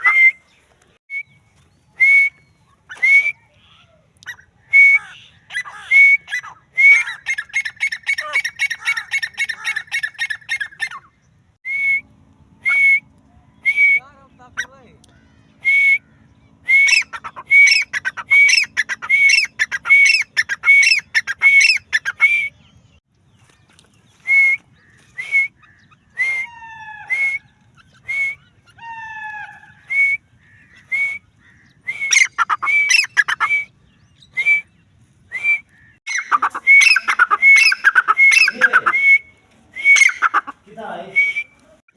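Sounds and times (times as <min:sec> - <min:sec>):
francolin harsh calls: 0:35.8 - 0:39.1.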